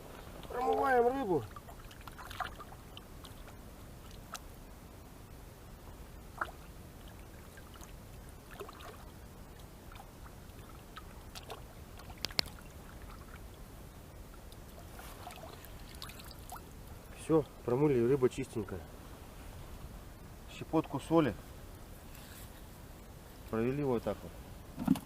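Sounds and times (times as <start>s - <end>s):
water splashing and dribbling: 0.0s - 4.6s, 5.8s - 17.3s.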